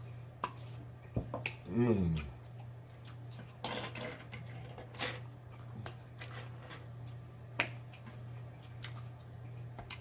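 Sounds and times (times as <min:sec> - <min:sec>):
low electrical hum: 0:00.0 - 0:10.0
man chewing and lip smacking: 0:00.4 - 0:03.6, 0:07.0 - 0:10.0
man humming mmm: 0:01.6 - 0:02.4.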